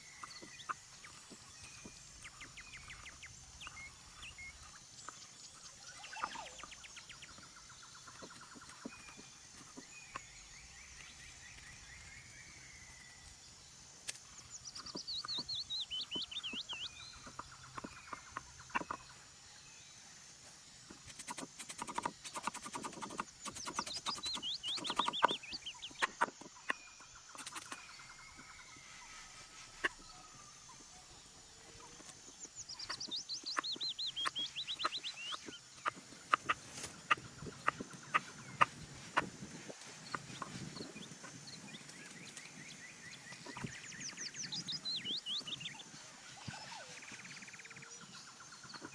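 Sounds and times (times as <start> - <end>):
bird warbling song: 0.0 - 20.1, 20.9 - 48.9
sharp clicks and crackles: 27.4 - 27.8.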